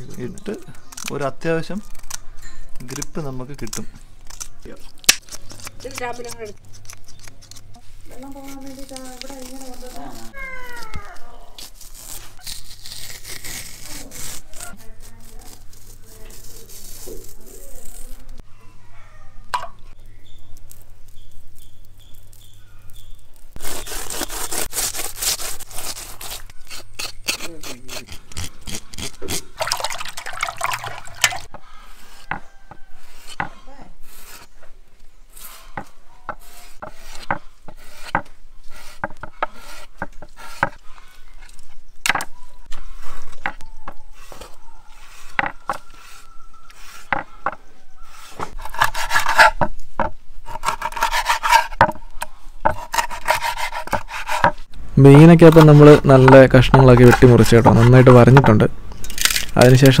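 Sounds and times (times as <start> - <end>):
knife scraping fish: 11.6 - 18.3, 23.6 - 29.7, 35.3 - 41.4, 48.0 - 49.7, 50.4 - 51.8, 52.6 - 54.7.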